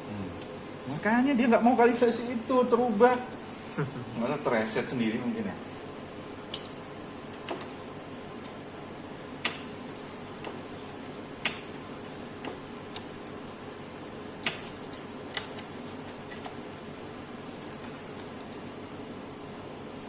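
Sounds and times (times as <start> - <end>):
short high beep: 14.5 - 15.1.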